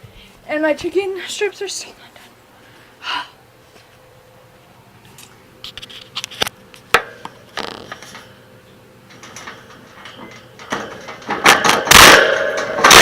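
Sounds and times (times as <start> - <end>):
scraping and clattering: 9.1 - 13.0.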